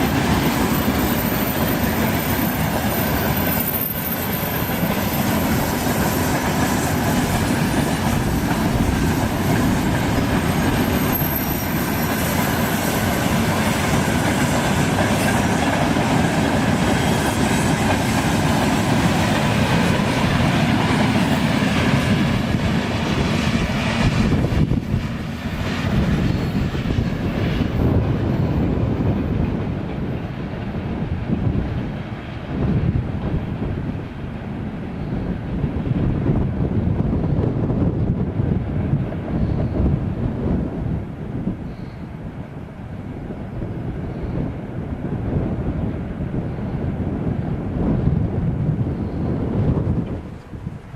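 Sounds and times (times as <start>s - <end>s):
freight train rumbling past: 0.0s - 50.9s.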